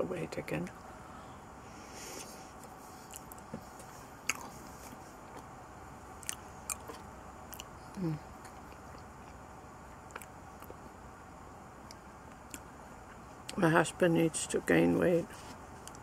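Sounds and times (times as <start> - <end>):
person chewing: 2.6 - 5.5, 6.2 - 9.4, 10.1 - 10.8
person humming: 8.0 - 8.3.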